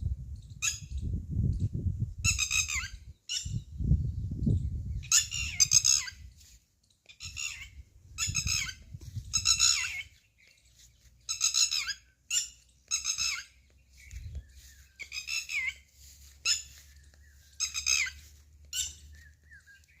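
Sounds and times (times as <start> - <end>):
bird squawking: 9.4 - 10.2, 15.0 - 16.8, 17.6 - 19.8.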